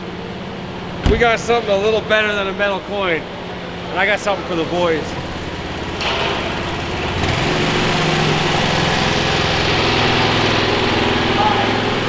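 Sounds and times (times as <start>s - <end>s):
small engine running: 6.8s - 12.0s.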